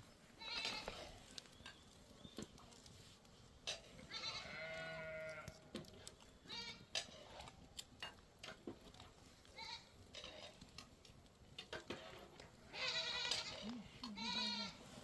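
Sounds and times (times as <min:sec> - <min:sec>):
livestock bleating: 0:04.1 - 0:05.5, 0:12.7 - 0:14.9.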